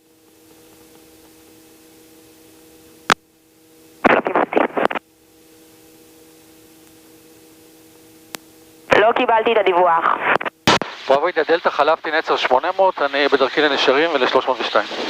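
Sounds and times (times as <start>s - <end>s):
faint steady hum: 0.0s - 15.0s
garbled radio transmission: 4.0s - 5.0s, 8.9s - 15.0s.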